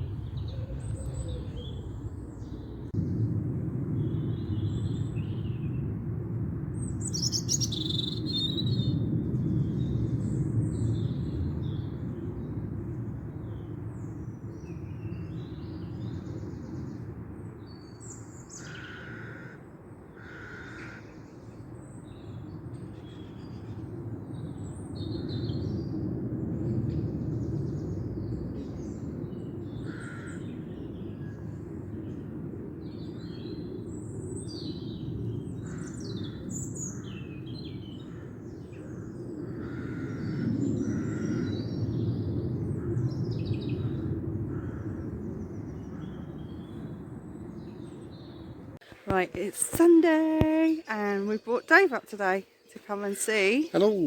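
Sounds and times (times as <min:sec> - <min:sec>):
low rumble: 0:00.0 - 0:07.1
birds chirping and singing: 0:07.1 - 0:09.0, 0:47.6 - 0:54.0.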